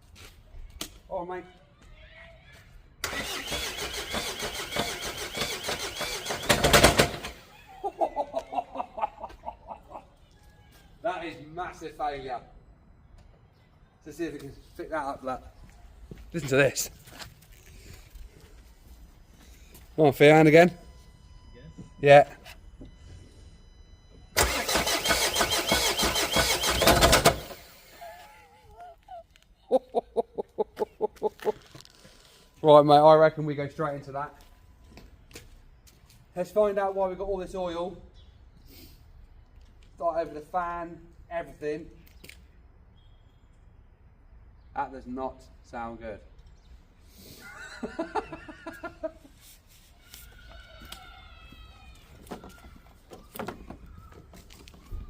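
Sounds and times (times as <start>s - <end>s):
diesel engine cranking and knocking: 3.0s - 7.5s, 24.2s - 28.0s.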